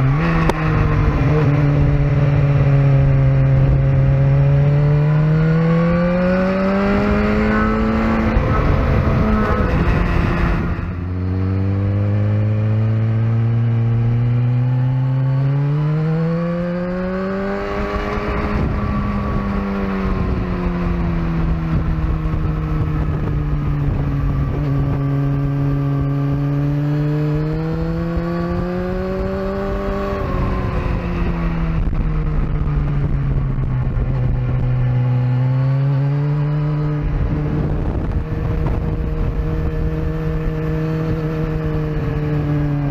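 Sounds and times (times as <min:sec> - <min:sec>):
steady rushing noise: 0:00.0 - 0:12.5
motorcycle engine accelerating: 0:00.0 - 0:42.9.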